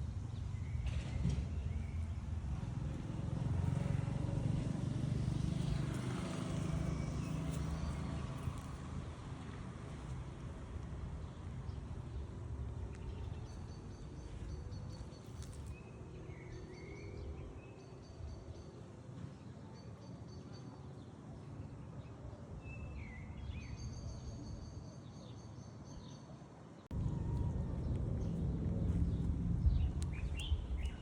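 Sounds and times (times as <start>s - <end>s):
low outdoor rumble: 0.0s - 18.4s, 26.9s - 31.0s
small birds chirping trills: 5.1s - 18.8s, 27.2s - 31.0s
loud rumble: 26.9s - 31.0s.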